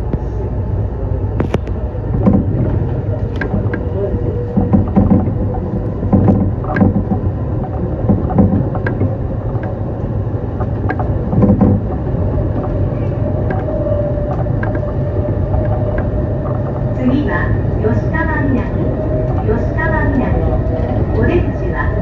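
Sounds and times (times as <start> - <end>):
electric train rumbling: 0.0 - 22.0
wheel clicks and knocks: 2.2 - 10.0, 10.6 - 16.9.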